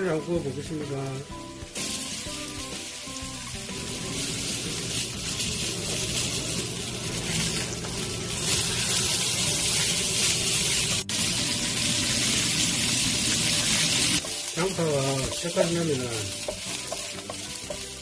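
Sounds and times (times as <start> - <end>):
chicken sizzling in hot oil: 0.0 - 18.0.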